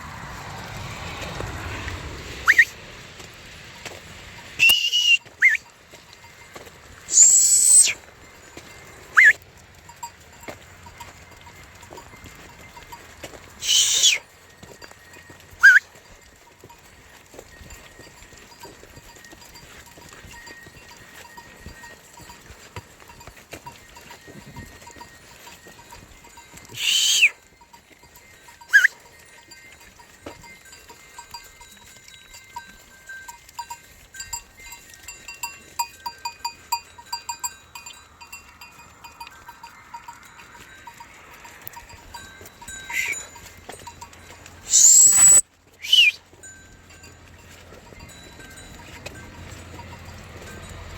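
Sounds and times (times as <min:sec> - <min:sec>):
sheep bells clinking: 0:00.0 - 0:50.9
high-pitched calls: 0:02.4 - 0:02.8, 0:04.6 - 0:05.7, 0:07.1 - 0:08.0, 0:09.1 - 0:09.4, 0:13.6 - 0:14.2, 0:15.6 - 0:15.8, 0:26.7 - 0:27.4, 0:28.7 - 0:29.0, 0:42.7 - 0:43.3, 0:44.6 - 0:46.2.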